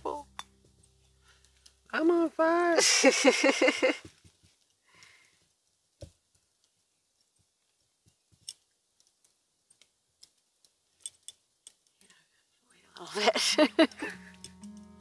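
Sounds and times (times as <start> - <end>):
faint small clicks and taps: 4.0 - 12.2.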